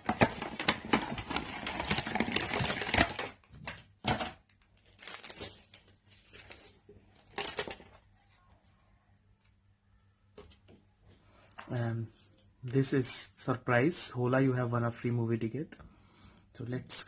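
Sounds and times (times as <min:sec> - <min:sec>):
packaging rustling and clicking: 0:00.0 - 0:08.0.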